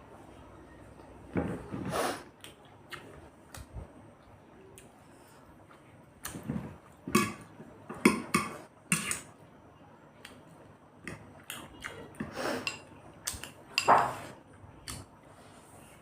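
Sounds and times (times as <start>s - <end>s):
cutlery clinking on plates: 13.7s - 14.3s.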